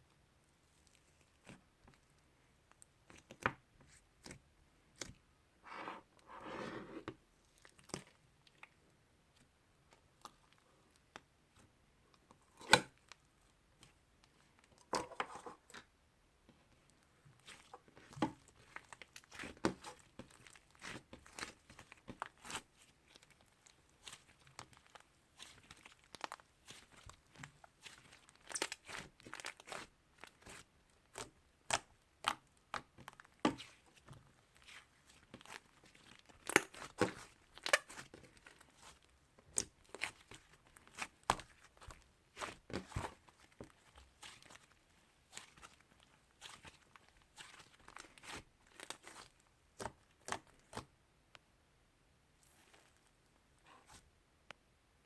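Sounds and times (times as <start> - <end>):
slime crackling and popping: 17.4 - 50.8.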